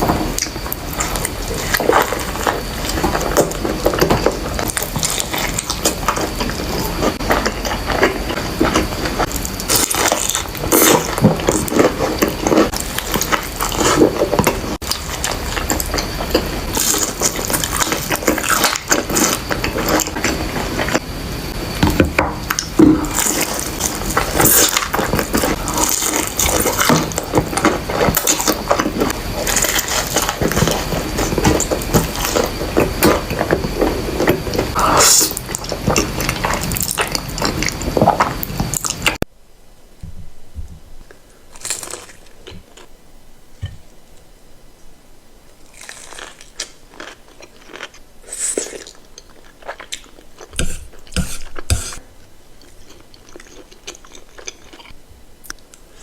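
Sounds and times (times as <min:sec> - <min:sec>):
crunching and chewing food: 0:00.0 - 0:39.2, 0:41.0 - 0:44.0, 0:45.5 - 0:56.0.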